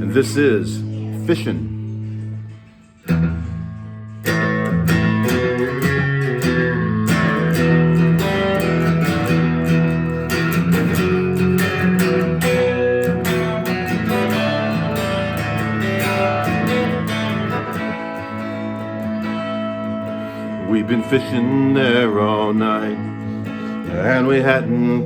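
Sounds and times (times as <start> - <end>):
strummed guitar: 0.0 - 25.0.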